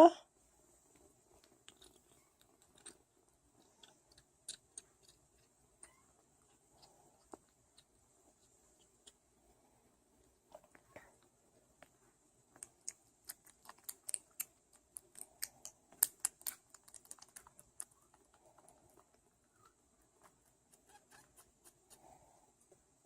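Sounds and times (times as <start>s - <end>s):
kitten suckling clicks and smacks: 1.4s - 9.2s, 12.5s - 19.2s.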